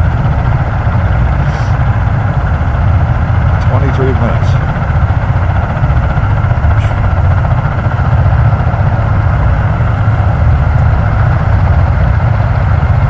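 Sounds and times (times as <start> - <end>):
tiltrotor aircraft idling: 0.0 - 13.0.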